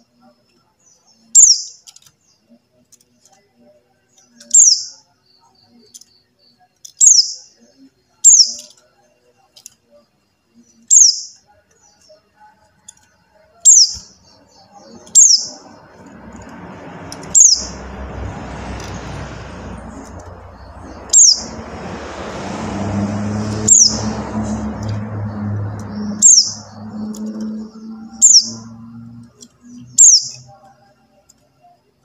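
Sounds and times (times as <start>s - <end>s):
bird chirps: 0.0s - 2.8s, 4.1s - 8.8s, 9.9s - 18.0s, 18.8s - 21.7s, 23.3s - 31.8s
rushing background noise: 12.6s - 31.6s
low hum: 14.1s - 30.0s.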